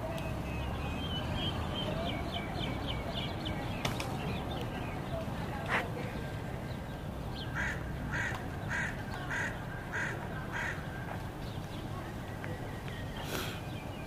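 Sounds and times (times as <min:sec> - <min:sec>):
bird harsh calls: 0:07.4 - 0:10.9.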